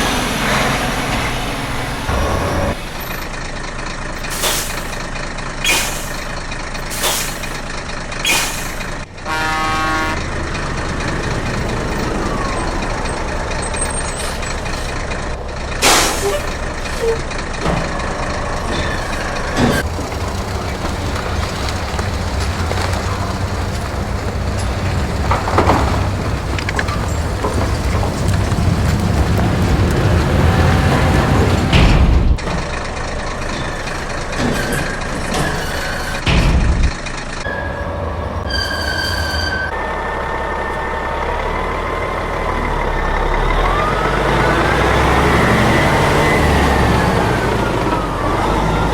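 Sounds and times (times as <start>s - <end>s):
heavy vehicle engine rumble: 0.0s - 48.9s
loud thump: 31.4s - 32.8s, 36.2s - 37.0s.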